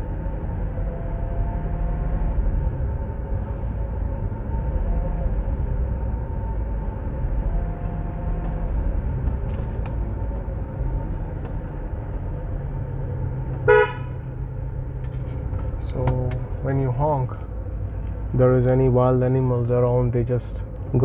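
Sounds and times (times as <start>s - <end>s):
engine and tyres rumbling: 0.0s - 21.0s
car horn honk: 13.5s - 14.4s.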